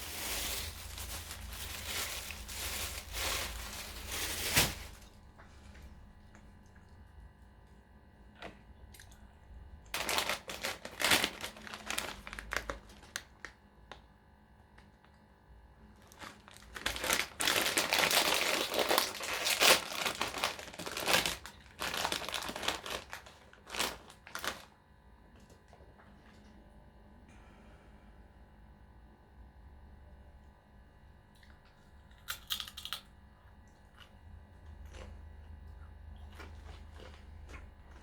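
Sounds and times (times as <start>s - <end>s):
food packaging crinkling: 0.0s - 5.2s, 9.9s - 14.0s, 16.0s - 24.8s, 32.1s - 33.0s, 34.8s - 38.0s.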